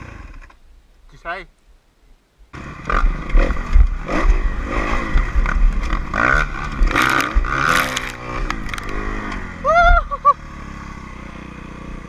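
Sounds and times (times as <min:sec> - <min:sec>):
dirt bike engine revving: 0:02.6 - 0:09.7.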